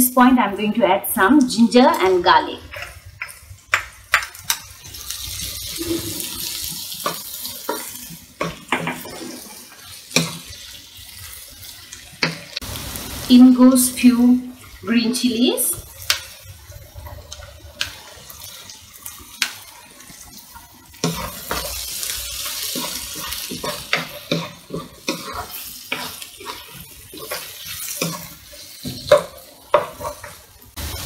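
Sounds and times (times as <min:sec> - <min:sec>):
onions sizzling in oil: 0:01.1 - 0:31.0
spatula scraping pan: 0:05.6 - 0:10.7, 0:20.5 - 0:30.8.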